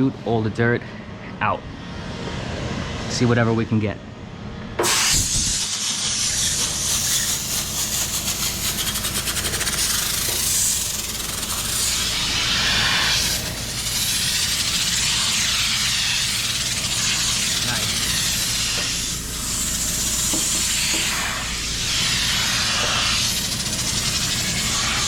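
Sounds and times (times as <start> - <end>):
steady low hum: 0.0 - 25.0
compressed air hissing: 4.8 - 25.0.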